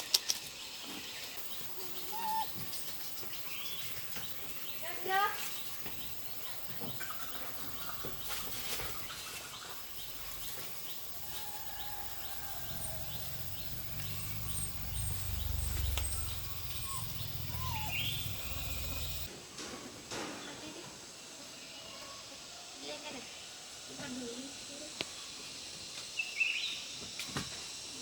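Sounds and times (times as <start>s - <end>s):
birds chirping: 0.2s - 19.3s
high ticking bird call: 1.5s - 8.2s, 11.2s - 19.3s
low rumble: 12.1s - 19.3s.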